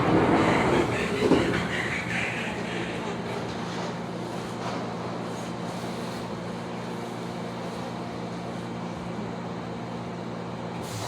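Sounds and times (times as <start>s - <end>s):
electric train running: 0.0s - 4.7s.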